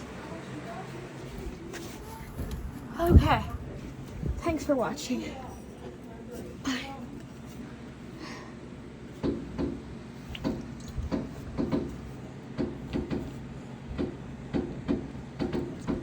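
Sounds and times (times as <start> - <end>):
dull thumps: 2.4 - 4.6.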